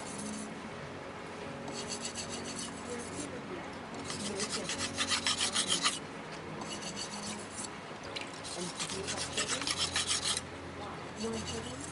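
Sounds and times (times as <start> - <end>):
knife scraping on whetstone: 0.0 - 0.5, 1.7 - 3.3, 4.0 - 6.0, 6.6 - 7.7, 8.4 - 10.4, 11.2 - 11.9.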